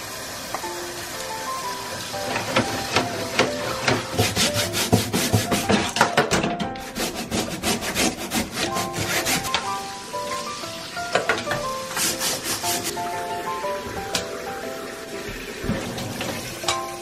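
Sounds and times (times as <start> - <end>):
bristle brush scrubbing metal mesh: 3.6 - 6.0, 6.8 - 9.8, 11.8 - 13.0.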